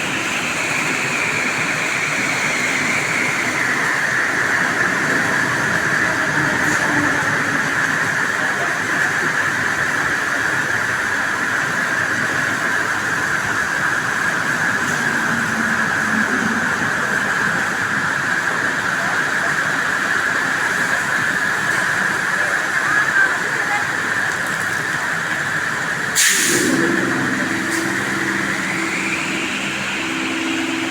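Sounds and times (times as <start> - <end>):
heavy rain falling: 12.1 - 30.9.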